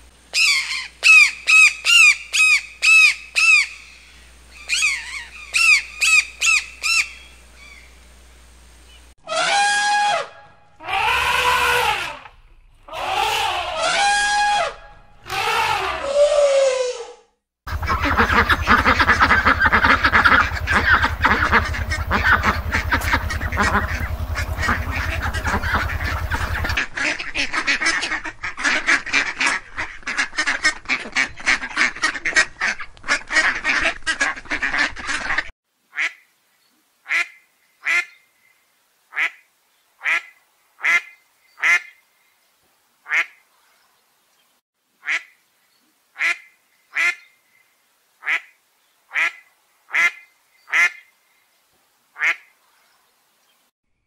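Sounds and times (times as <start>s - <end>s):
steady low hum: 17.7s - 26.8s
flock of ducks quacking: 17.7s - 36.1s
single duck quacking: 17.7s - 36.2s, 39.1s - 39.4s, 43.1s - 43.4s, 48.2s - 51.1s, 52.2s - 52.5s.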